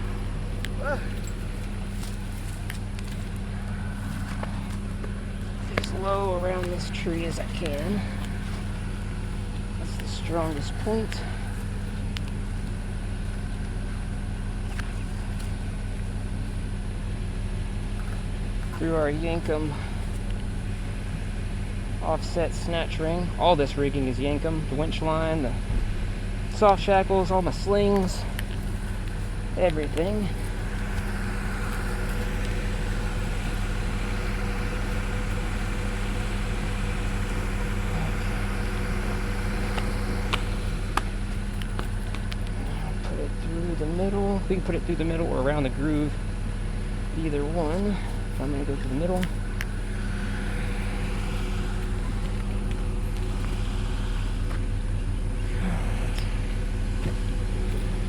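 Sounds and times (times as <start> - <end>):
vehicle engine idling: 0.0 - 58.0.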